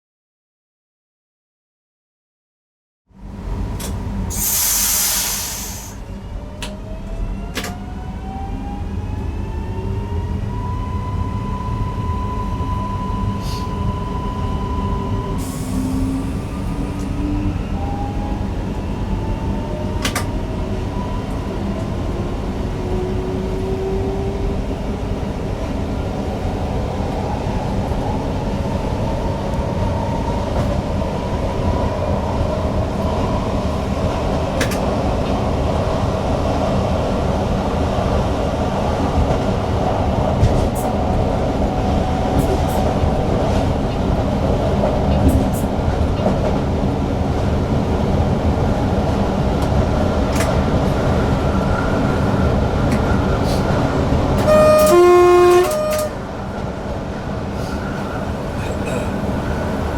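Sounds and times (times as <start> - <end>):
train wheels rumbling on track: 3.2 - 10.6, 11.2 - 59.9
short hiss: 4.3 - 6.0.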